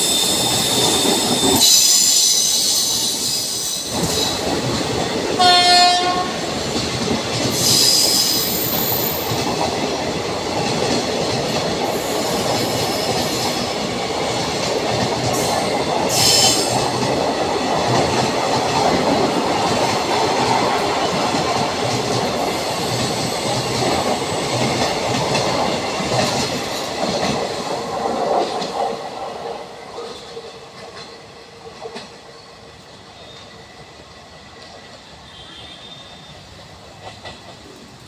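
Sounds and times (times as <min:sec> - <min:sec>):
distant train rumble: 0:00.0 - 0:38.0
train wheels clattering over rail joints: 0:06.0 - 0:32.2.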